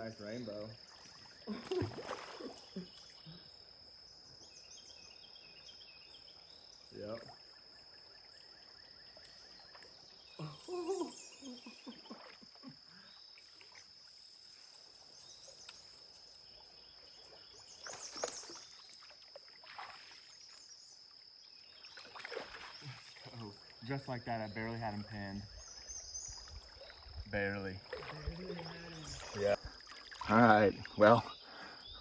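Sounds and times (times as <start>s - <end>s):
cicadas droning: 0.0s - 32.0s
water sloshing and splashing: 0.8s - 3.2s, 11.6s - 20.8s, 21.8s - 23.9s, 24.8s - 31.2s.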